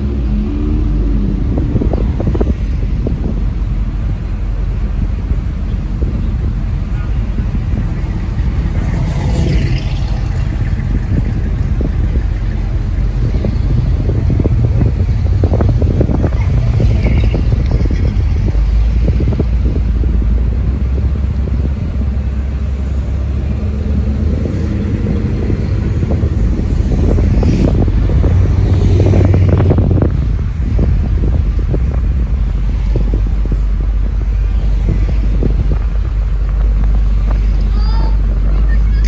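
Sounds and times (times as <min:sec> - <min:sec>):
car engines cruising past: 0:05.2 - 0:39.0.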